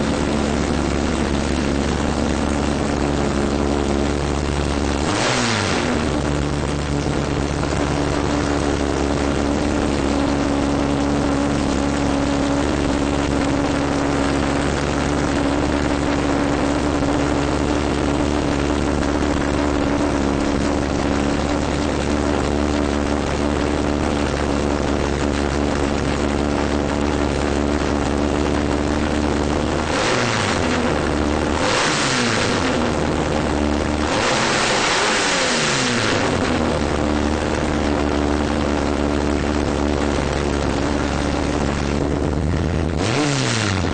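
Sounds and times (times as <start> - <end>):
car engine idling: 0.0 - 43.9
engine revving with intake rush: 0.0 - 43.9.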